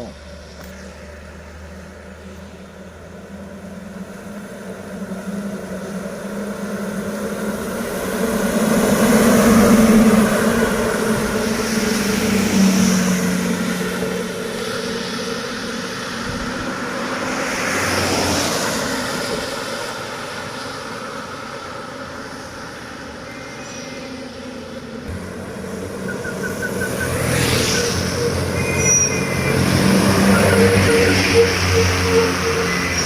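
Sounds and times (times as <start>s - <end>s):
heavy truck engines droning: 24.1s - 33.0s
vehicle passing: 25.0s - 33.0s.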